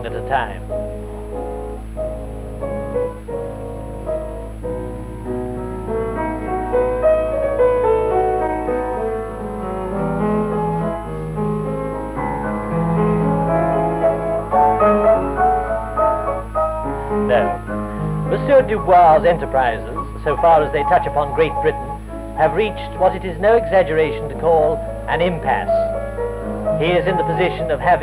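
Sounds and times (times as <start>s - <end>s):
piano melody: 0.0s - 28.0s.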